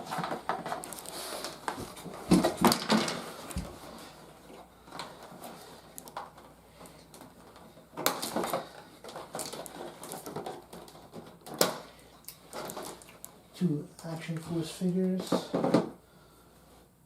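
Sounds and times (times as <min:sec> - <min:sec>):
packaging crinkling: 0:00.0 - 0:03.6, 0:07.1 - 0:13.3
plastic toy parts rustling and clicking: 0:00.0 - 0:03.6, 0:04.9 - 0:13.4.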